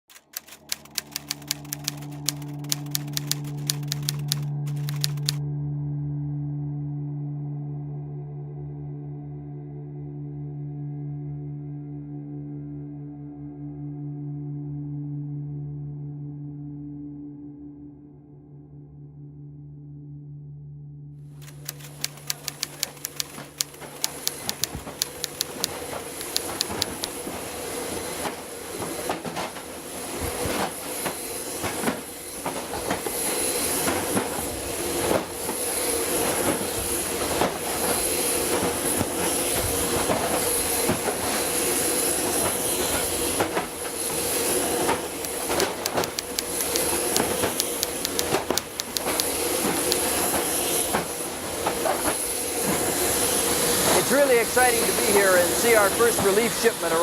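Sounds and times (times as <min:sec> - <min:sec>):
machinery hum and hiss: 0:21.4 - 0:57.0.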